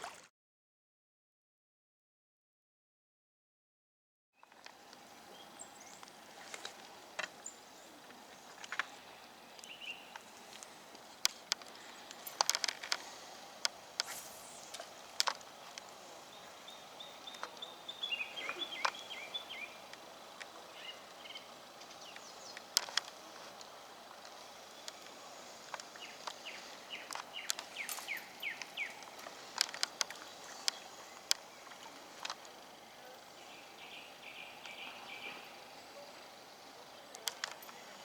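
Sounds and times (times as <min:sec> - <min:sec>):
bird chirping: 0:04.4 - 0:38.0
outdoor ambience: 0:04.4 - 0:38.0.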